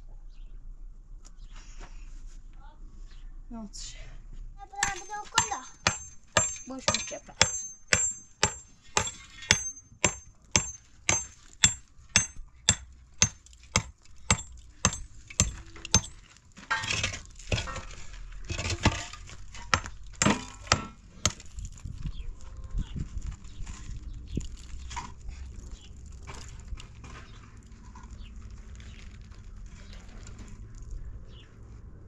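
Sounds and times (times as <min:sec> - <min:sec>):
clattering and rustling: 0:14.3 - 0:21.0.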